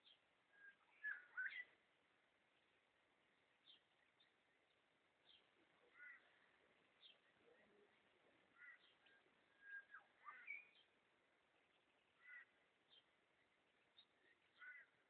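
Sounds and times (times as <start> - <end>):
harsh bird call phrases: 5.3 - 11.0, 12.0 - 12.7, 14.5 - 15.0.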